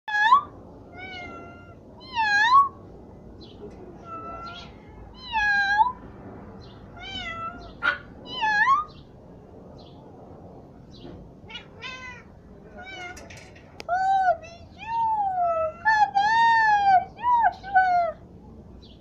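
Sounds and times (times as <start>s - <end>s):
cat meowing: 0.1s - 2.8s, 4.0s - 6.0s, 7.0s - 9.0s, 11.5s - 13.4s.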